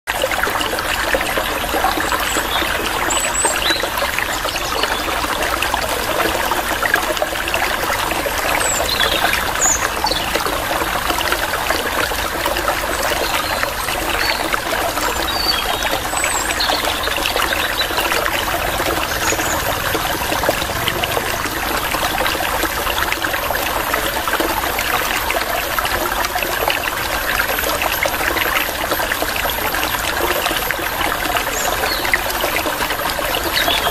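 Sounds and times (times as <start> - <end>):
water trickling: 0.1 - 33.9.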